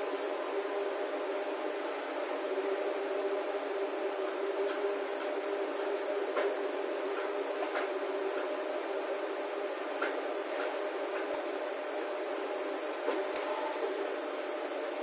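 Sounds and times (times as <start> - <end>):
pump truck machine drone: 0.0 - 15.0.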